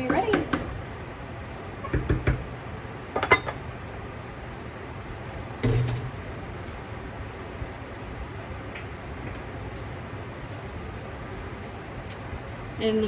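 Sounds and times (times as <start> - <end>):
dishes and utensils clattering: 3.2 - 3.6.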